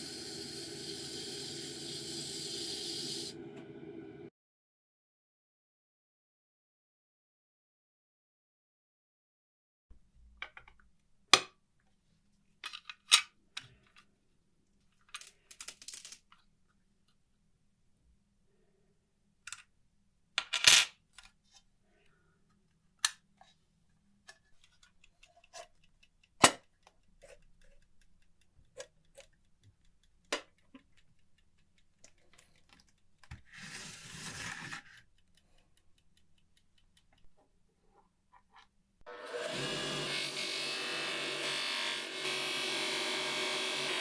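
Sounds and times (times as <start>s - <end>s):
metal parts clicking and clinking: 15.1s - 16.4s
rough rubbing noise: 33.5s - 35.0s
small motorised tool running: 39.1s - 44.0s.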